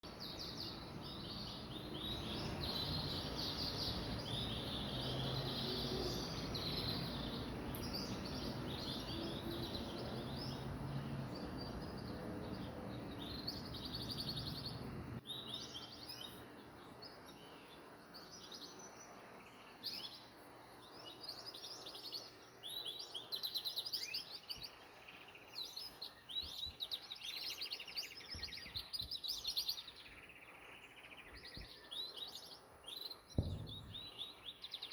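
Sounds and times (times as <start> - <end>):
canary singing: 0.0 - 17.9
low steady background noise: 0.0 - 34.9.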